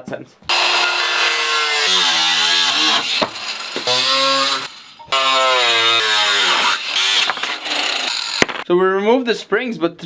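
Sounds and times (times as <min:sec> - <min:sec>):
power tool cutting metal: 0:00.5 - 0:08.5.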